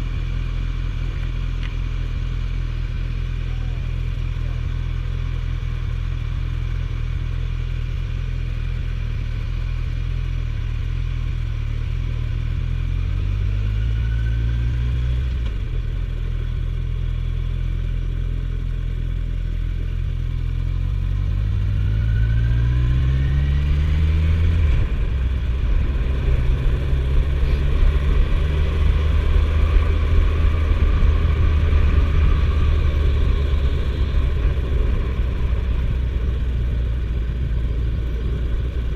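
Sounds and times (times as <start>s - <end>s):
motorcycle engine revving: 20.0s - 38.9s.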